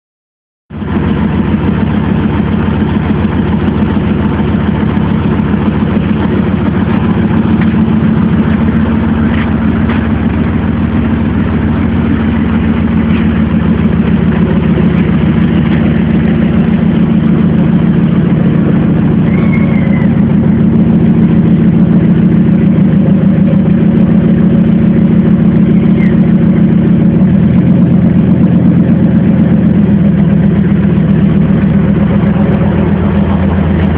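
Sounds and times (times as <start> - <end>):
car engine idling: 0.7 - 33.9.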